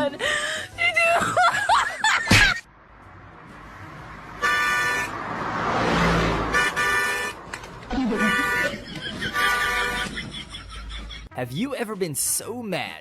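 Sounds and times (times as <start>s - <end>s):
steady horn honk: 4.4s - 5.6s, 6.3s - 7.5s, 8.1s - 10.2s.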